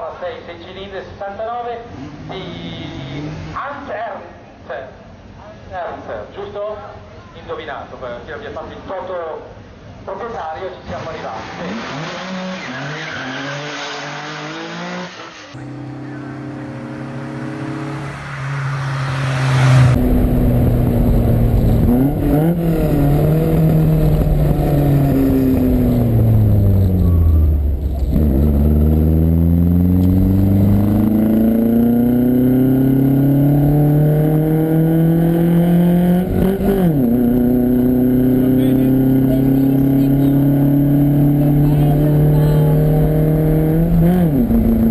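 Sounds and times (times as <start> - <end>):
car engine revving through gears: 11.4 - 44.9.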